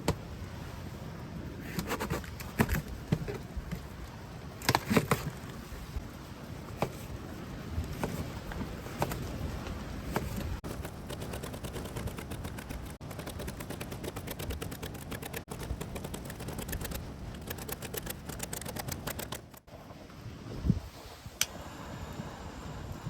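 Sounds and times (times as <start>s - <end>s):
rapid crackling clicks: 10.6s - 19.7s.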